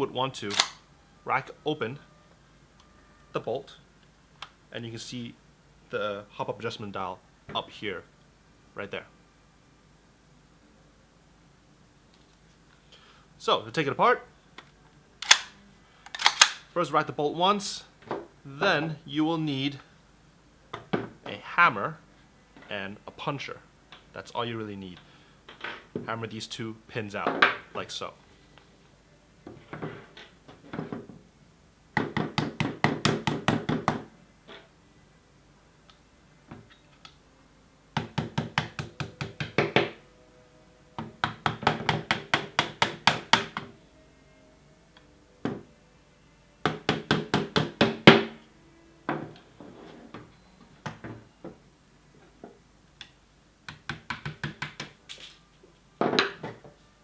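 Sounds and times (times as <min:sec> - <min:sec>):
hammer tapping a pin punch: 0:38.0 - 0:40.0, 0:41.0 - 0:43.7, 0:46.6 - 0:48.4, 0:53.7 - 0:55.0.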